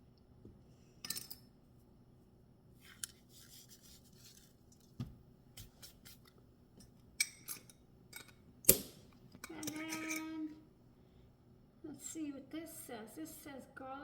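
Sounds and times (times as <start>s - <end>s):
spice shaker rustle: 2.8s - 5.0s.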